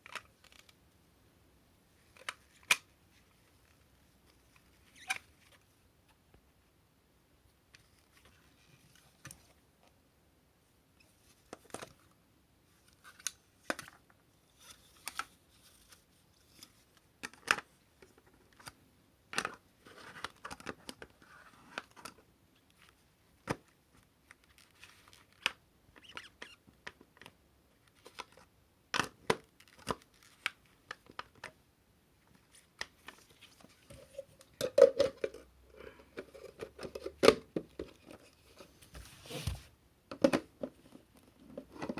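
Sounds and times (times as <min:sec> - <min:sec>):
packaging rustling: 0:38.8 - 0:39.7.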